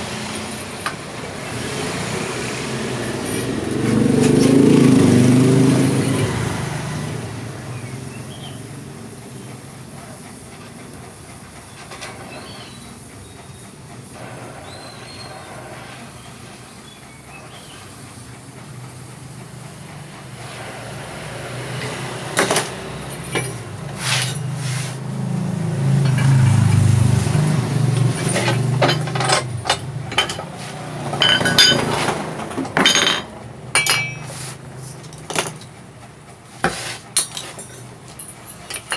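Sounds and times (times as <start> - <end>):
engine running: 0.0 - 38.9
metal parts clinking: 22.4 - 24.5, 26.0 - 26.9, 27.8 - 35.7, 37.2 - 38.9.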